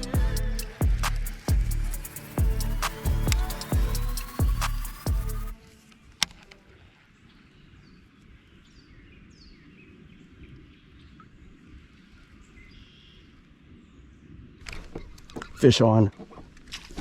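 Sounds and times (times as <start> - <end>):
faint bird chirps: 7.1 - 14.2.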